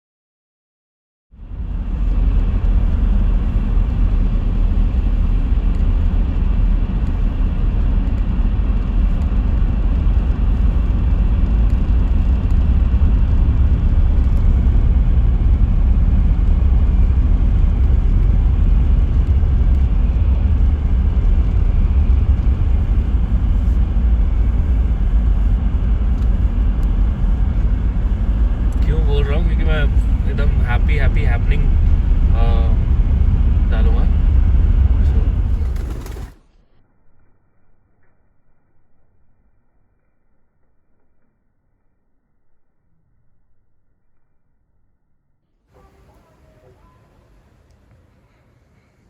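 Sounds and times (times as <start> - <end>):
road noise: 1.4 - 36.4
vehicle engine rumble: 1.4 - 41.0.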